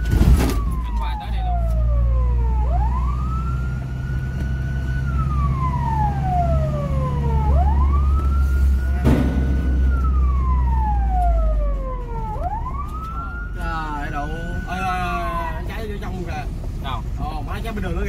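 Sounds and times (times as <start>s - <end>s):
fire engine siren wailing: 0.0s - 16.6s
engine humming: 0.0s - 18.0s
sharp knock: 9.0s - 10.0s.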